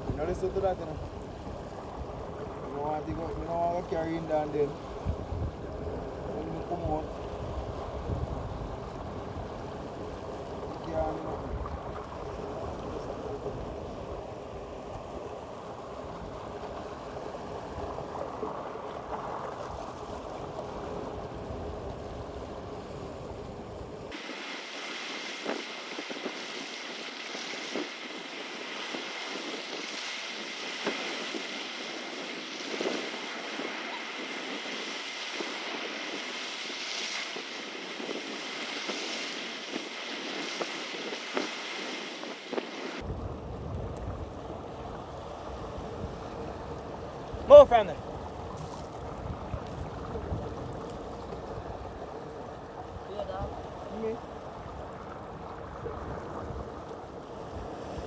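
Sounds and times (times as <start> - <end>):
wind buffeting microphone: 0.0 - 58.0
river water rushing: 24.1 - 43.0.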